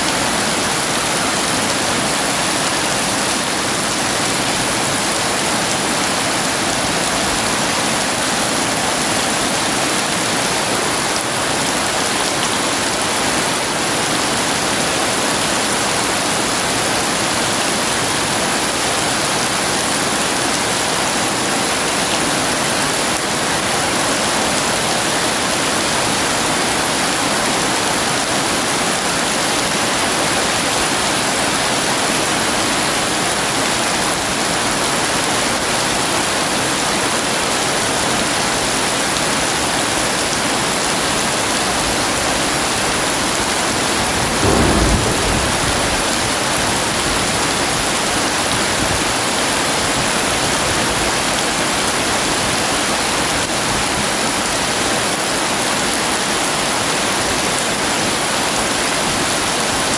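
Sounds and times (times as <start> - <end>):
heavy rain pouring: 0.0 - 59.9
low rumble of thunder: 43.8 - 48.1.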